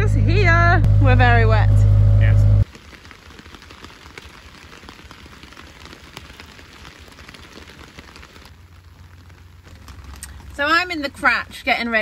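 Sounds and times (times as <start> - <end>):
low rumble: 0.0 - 2.7
rain drops ticking: 2.6 - 12.0.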